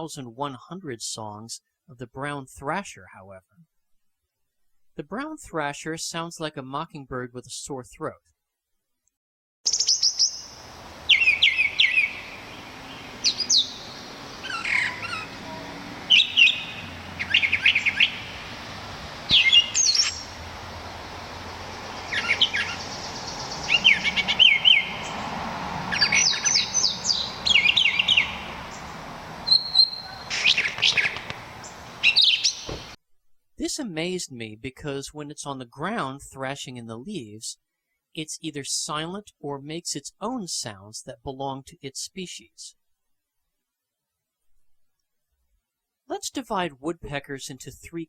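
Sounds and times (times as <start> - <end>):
bird singing varied phrases: 9.7 - 25.3, 25.9 - 33.0.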